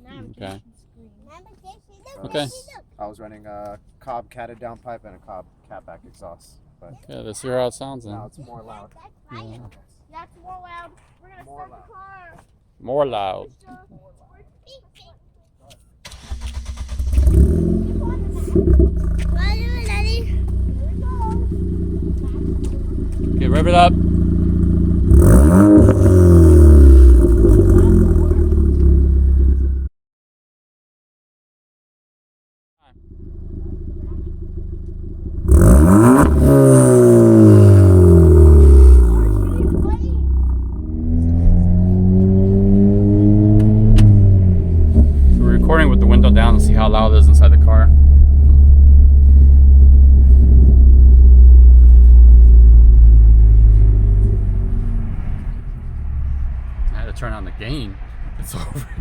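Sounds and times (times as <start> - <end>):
car engine revving: 16.1 - 29.9, 33.0 - 59.0.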